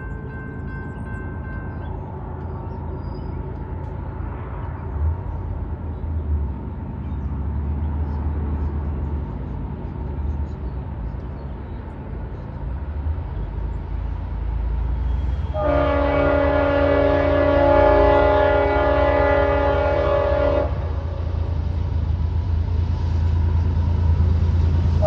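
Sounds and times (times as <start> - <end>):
diesel locomotive rumbling: 0.0 - 25.0
train air horn chord: 15.4 - 21.3.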